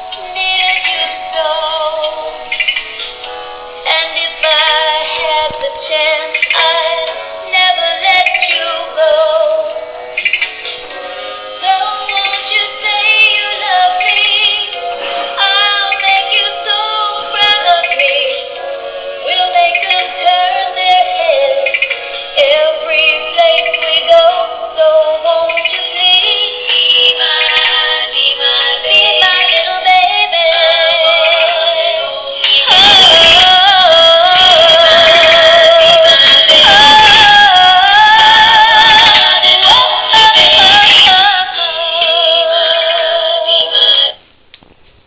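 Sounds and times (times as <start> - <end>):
toy playing song with synthetic voice: 12.0 - 37.4.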